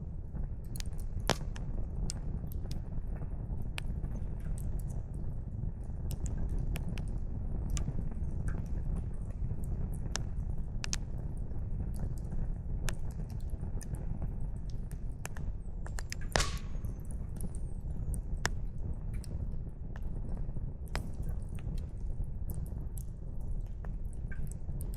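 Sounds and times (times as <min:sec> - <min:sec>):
campfire crackling: 0:00.1 - 0:24.9
firewood popping: 0:00.6 - 0:02.9, 0:14.6 - 0:19.4.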